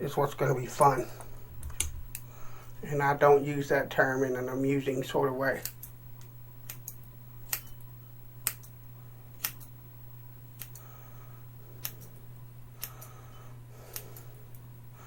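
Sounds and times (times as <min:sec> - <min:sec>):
steady low hum: 0:00.0 - 0:15.0
scissors snipping hair: 0:05.6 - 0:08.8, 0:09.4 - 0:09.7, 0:10.6 - 0:10.8, 0:11.8 - 0:12.2, 0:12.8 - 0:13.1, 0:13.9 - 0:14.6.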